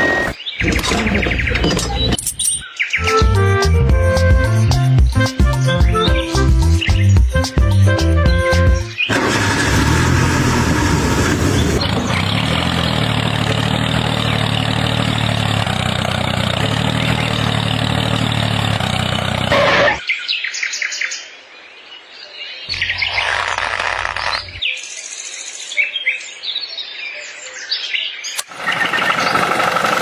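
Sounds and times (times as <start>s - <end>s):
engine running steadily: 9.1s - 20.0s, 22.7s - 24.6s, 28.4s - 30.0s
bird chirps: 22.6s - 29.5s.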